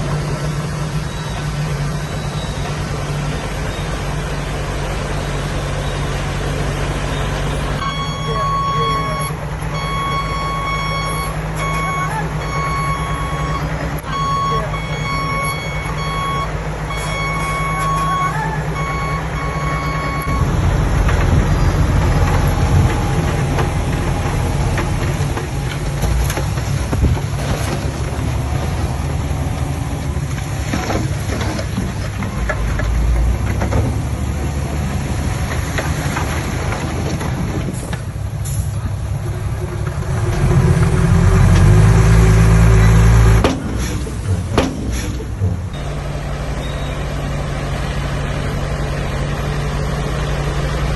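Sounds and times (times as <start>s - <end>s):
truck reversing alarm beeps: 0.0s - 23.3s, 41.5s - 50.6s
heavy diesel engines under load: 0.0s - 50.9s.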